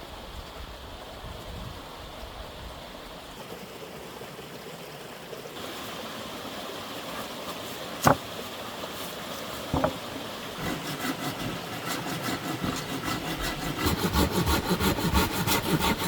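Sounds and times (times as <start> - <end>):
sharp knocks: 8.0 - 8.2, 9.7 - 10.0.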